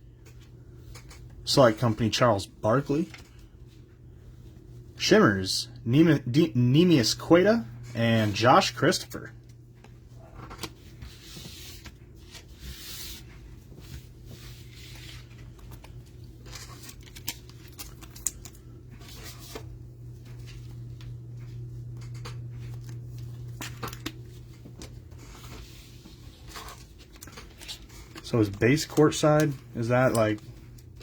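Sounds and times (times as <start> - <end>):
packaging tearing and rustling: 15.3 - 19.6.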